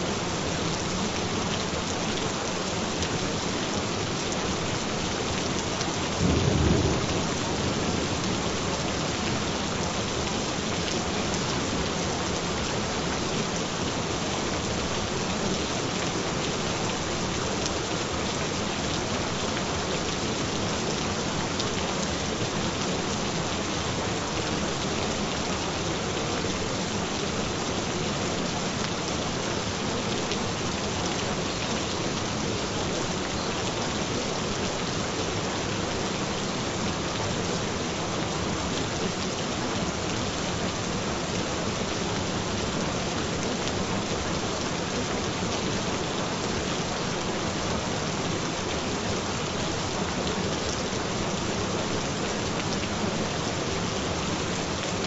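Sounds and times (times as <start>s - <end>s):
steady rain: 0.0s - 55.0s
thunder rumble: 6.2s - 8.7s.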